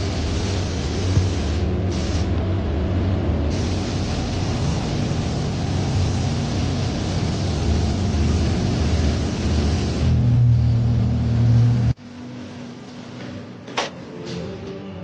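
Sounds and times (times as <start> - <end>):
car engine rumbling: 1.2 - 12.0.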